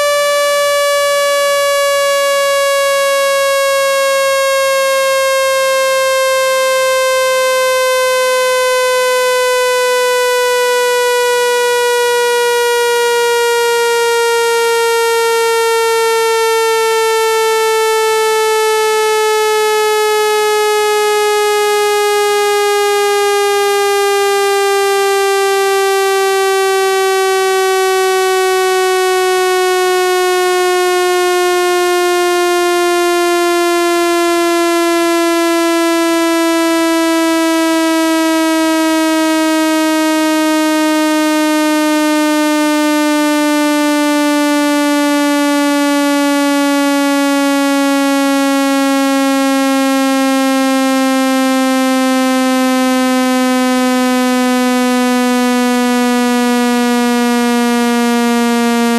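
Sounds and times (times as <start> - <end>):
buzzy tone sliding down: 52.1 - 58.9.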